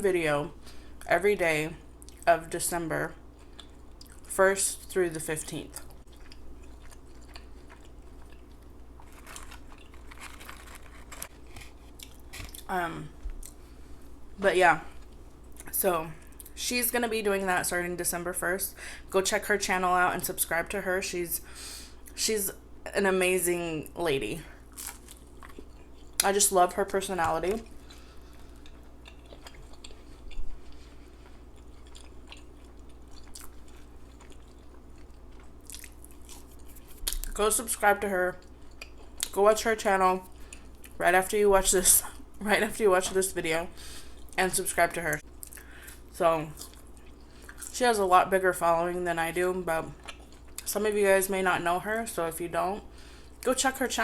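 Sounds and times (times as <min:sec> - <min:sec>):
person chewing food: 0:03.2 - 0:04.3, 0:05.7 - 0:14.2, 0:14.9 - 0:16.6, 0:24.6 - 0:26.2, 0:27.2 - 0:37.4, 0:38.4 - 0:39.3, 0:45.2 - 0:47.7, 0:50.0 - 0:50.7.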